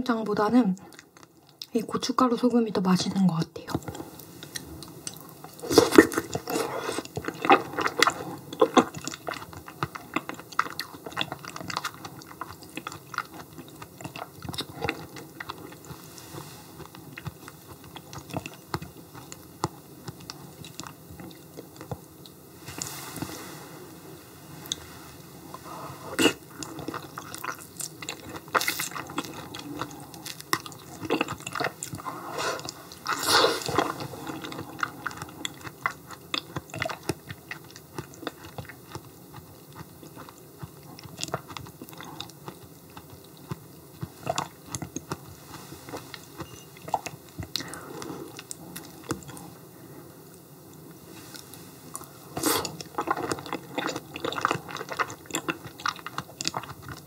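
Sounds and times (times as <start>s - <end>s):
chewing mouth sounds with clicks: 32.6s - 45.3s, 52.0s - 57.0s.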